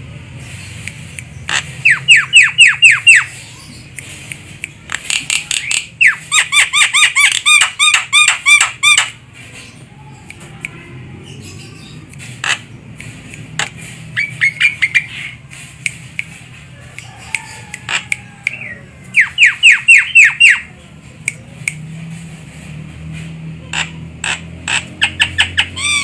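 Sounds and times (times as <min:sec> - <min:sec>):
myna calling: 0:01.4 - 0:03.8, 0:16.8 - 0:20.7.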